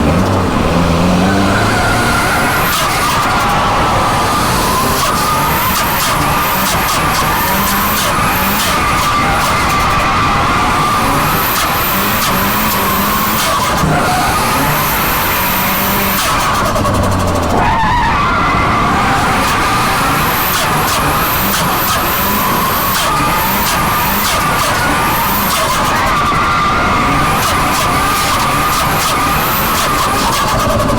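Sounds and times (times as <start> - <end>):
engine running hard: 0.0 - 30.9.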